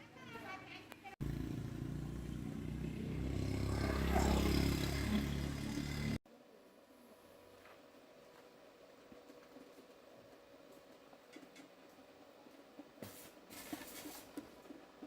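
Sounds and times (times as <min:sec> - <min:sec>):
engine running: 0:01.2 - 0:06.2.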